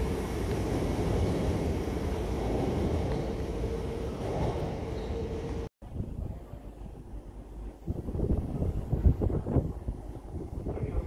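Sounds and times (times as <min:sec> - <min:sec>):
train rumbling: 0:00.0 - 0:05.7.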